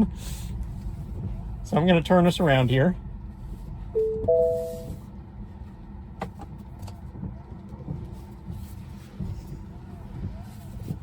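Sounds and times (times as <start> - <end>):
road noise: 0.0 - 11.0
two-note electronic chime: 4.0 - 5.0.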